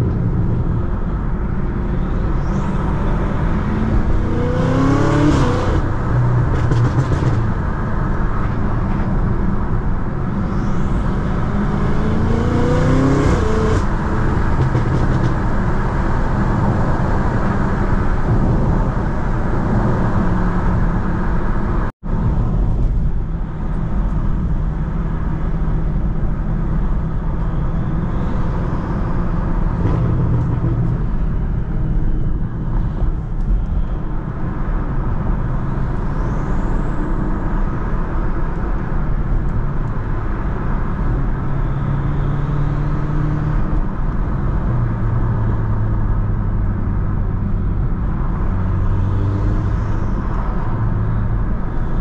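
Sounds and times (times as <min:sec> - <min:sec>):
car engine accelerating hard: 0:00.0 - 0:21.9
road and tyre noise: 0:00.0 - 0:52.0.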